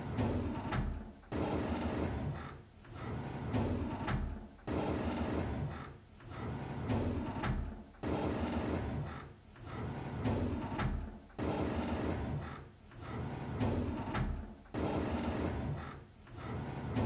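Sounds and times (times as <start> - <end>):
drawer sliding open: 13.1 - 17.0.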